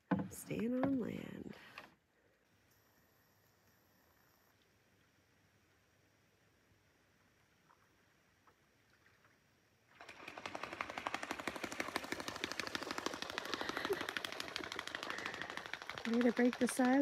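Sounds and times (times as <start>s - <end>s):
animal rapid rattling chatter: 10.0s - 17.0s.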